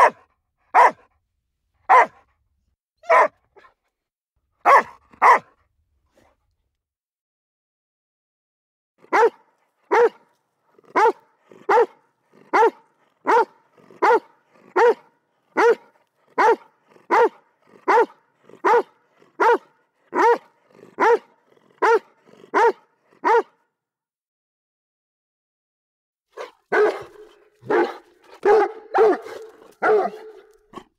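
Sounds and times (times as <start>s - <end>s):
dog barking: 0.0s - 1.1s, 1.8s - 2.3s, 3.0s - 3.8s, 4.6s - 5.6s, 9.0s - 23.6s, 26.3s - 30.9s.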